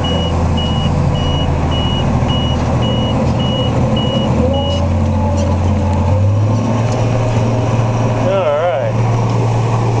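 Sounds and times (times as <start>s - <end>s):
electronic warning beeper: 0.0s - 4.8s
tractor engine running: 0.0s - 10.0s.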